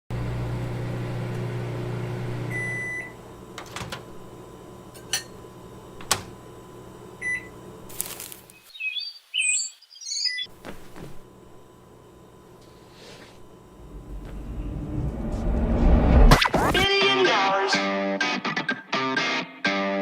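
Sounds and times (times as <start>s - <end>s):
microwave oven humming: 0.1s - 9.1s, 10.2s - 16.8s
high chirping sounds: 8.5s - 10.5s.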